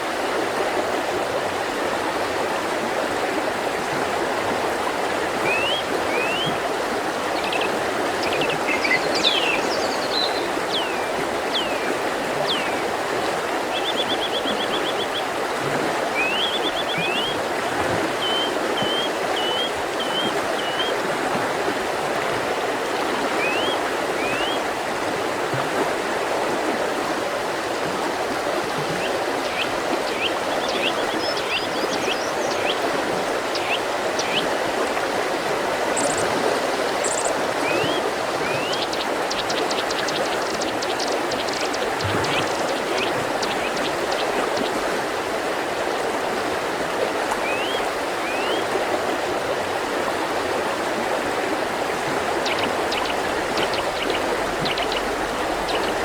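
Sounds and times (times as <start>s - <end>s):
river water rushing: 0.0s - 56.0s
small birds singing: 5.4s - 6.6s, 7.3s - 12.8s, 13.7s - 15.3s, 16.2s - 17.4s, 18.2s - 21.0s, 23.4s - 24.6s, 29.0s - 34.6s, 35.9s - 44.8s, 47.4s - 48.7s, 52.2s - 56.0s.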